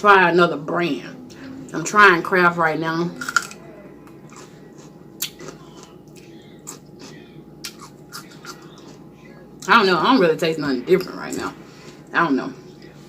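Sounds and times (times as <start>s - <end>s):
person chewing: 3.2s - 9.3s.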